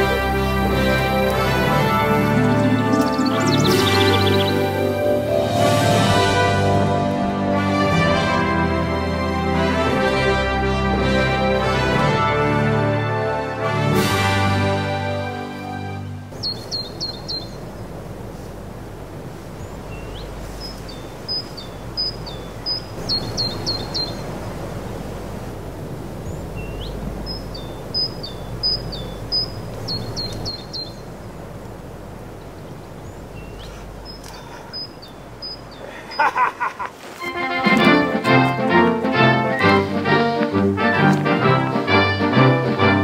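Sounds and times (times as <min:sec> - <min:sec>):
songbird singing: 0:00.0 - 0:06.5, 0:15.5 - 0:42.2.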